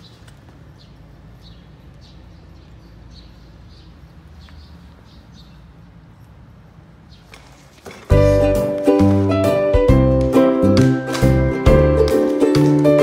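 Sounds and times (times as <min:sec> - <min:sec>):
bird chirping: 0:00.0 - 0:08.3.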